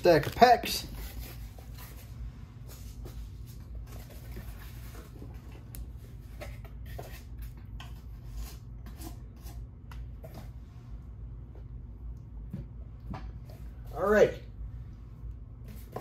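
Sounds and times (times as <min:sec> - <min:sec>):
card pack wrappers crinkling: 0:00.0 - 0:01.0
steady low hum: 0:00.0 - 0:16.0.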